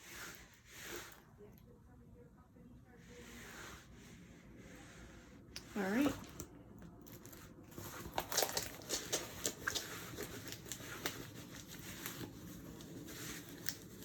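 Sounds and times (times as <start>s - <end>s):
plastic packaging crinkling: 7.0s - 14.0s.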